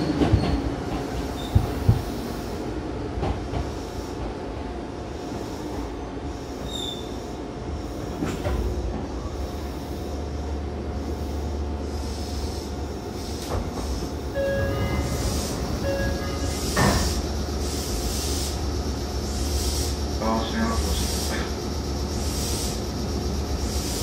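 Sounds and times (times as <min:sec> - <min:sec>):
track knocks: 0:00.0 - 0:02.2, 0:13.4 - 0:17.4
train wheels rumbling on rail: 0:00.0 - 0:24.0.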